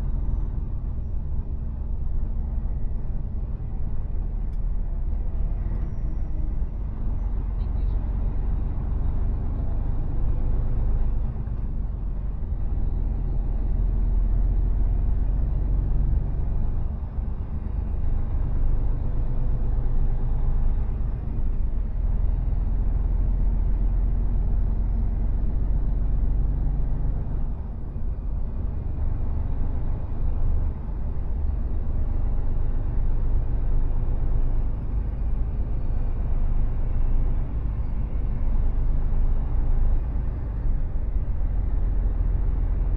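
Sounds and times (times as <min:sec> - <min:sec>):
truck diesel engine rumble: 0:00.0 - 0:42.9.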